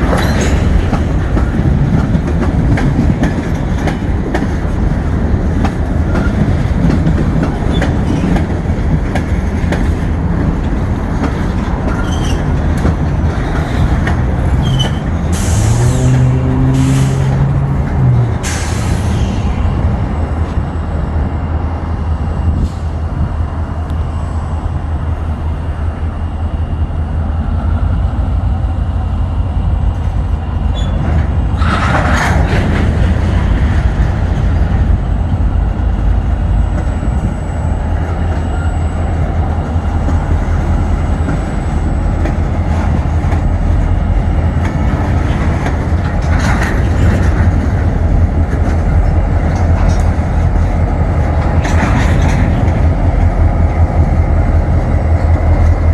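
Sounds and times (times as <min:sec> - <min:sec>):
freight train rumble and clatter: 0:00.0 - 0:55.9
metallic clank or squeal: 0:00.1 - 0:00.8, 0:11.9 - 0:12.5, 0:14.6 - 0:17.3, 0:18.4 - 0:19.8, 0:30.7 - 0:32.5.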